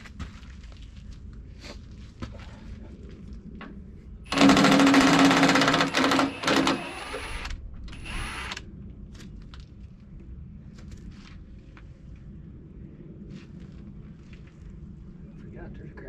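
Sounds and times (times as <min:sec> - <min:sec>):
impact wrench hammering: 0:04.3 - 0:07.2.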